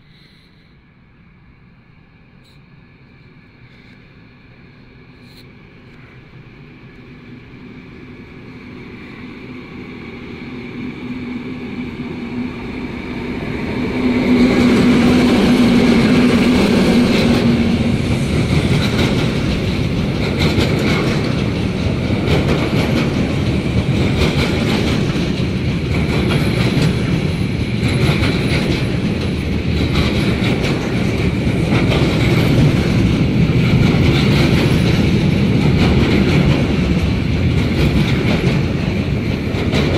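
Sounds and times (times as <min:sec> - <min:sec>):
train passing with a hum: 0:00.0 - 0:39.9
wheels clattering over rail joints: 0:18.4 - 0:39.9.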